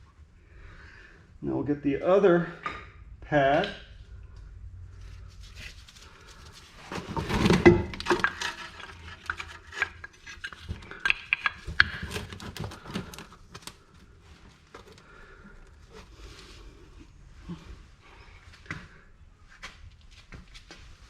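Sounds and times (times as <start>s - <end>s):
metal parts clinking and scraping: 7.1s - 13.2s.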